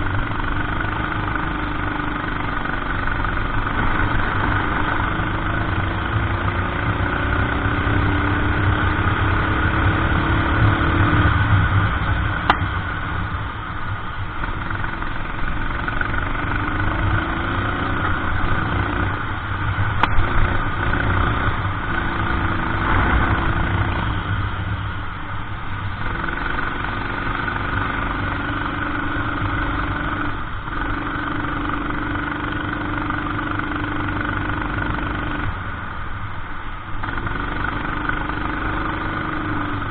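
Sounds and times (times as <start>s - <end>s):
racing kart engine accelerating: 0.0s - 12.6s.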